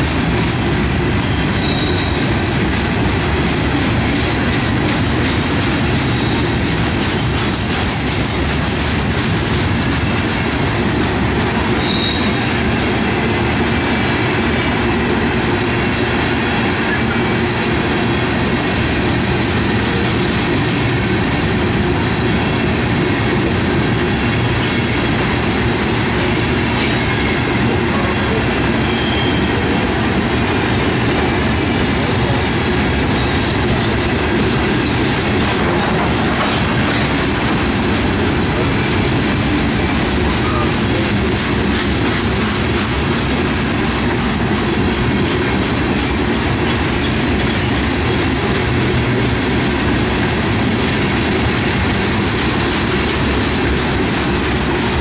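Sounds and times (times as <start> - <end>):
steel wheels rolling on rails: 0.0 - 55.0
high wheel squeal: 0.4 - 2.5, 5.7 - 9.5, 11.7 - 12.6, 26.8 - 29.8, 33.0 - 33.7, 40.1 - 43.4.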